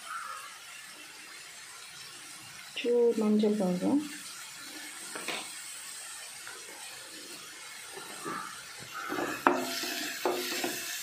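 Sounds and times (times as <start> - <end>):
onions sizzling in hot oil: 0.0 - 11.0
wooden spatula scraping: 8.0 - 11.0
spatula knocking against pan: 9.2 - 10.8.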